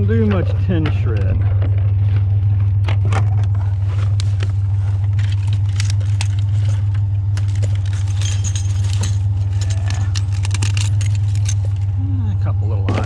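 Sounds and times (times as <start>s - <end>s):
truck engine droning: 0.0s - 13.0s
metallic jingling and rattling: 5.1s - 12.0s.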